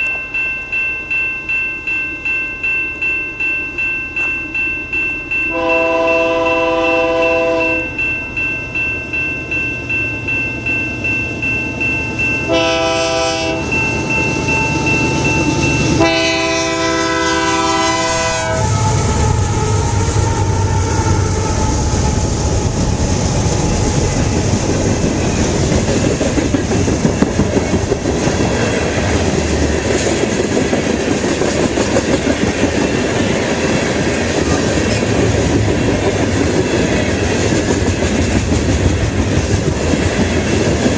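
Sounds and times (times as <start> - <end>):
train horn blasts: 5.5 - 7.9, 12.5 - 13.8, 16.0 - 23.0
locomotive engine rumble: 12.6 - 40.9
train wheels clacking on rails: 21.0 - 40.9.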